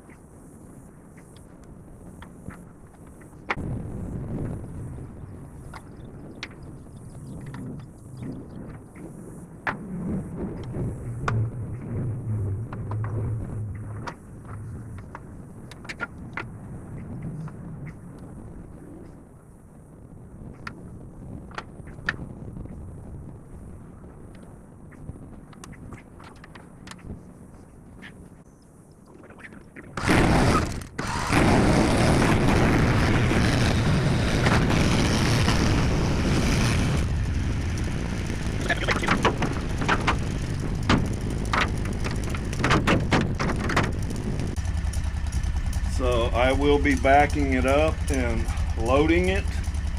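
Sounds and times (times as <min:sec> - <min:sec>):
skid steer engine running: 0:30.0 - 0:49.9
sharp knocks and clanks: 0:40.8 - 0:44.1.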